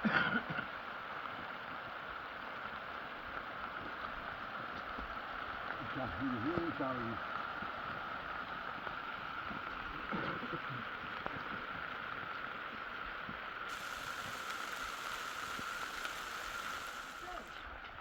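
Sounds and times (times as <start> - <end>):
heavy rain: 13.7 - 18.0.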